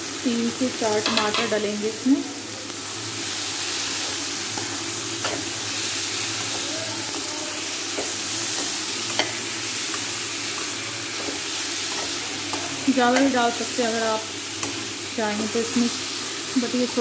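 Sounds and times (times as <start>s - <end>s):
vegetables sizzling in pan: 0.0s - 17.0s
metal spoon clicking on pan: 11.2s - 13.4s.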